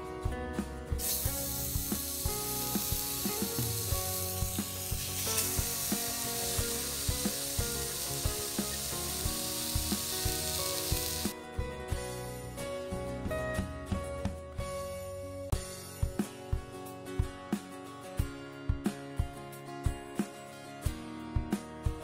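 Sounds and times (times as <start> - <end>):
fish sizzling in a frying pan: 1.0 - 11.3.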